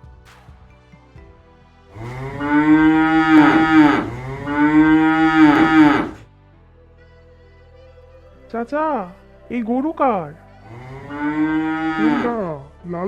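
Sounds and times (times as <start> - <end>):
cow mooing: 2.0 - 6.2, 10.7 - 12.6.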